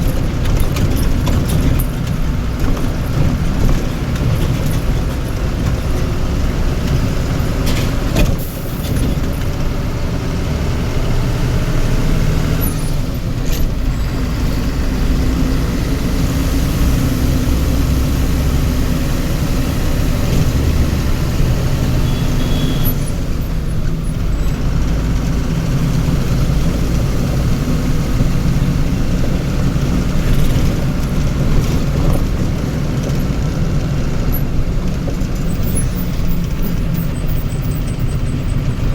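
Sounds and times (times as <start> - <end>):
heavy vehicle engine running: 0.0 - 38.9
road noise: 0.0 - 38.9.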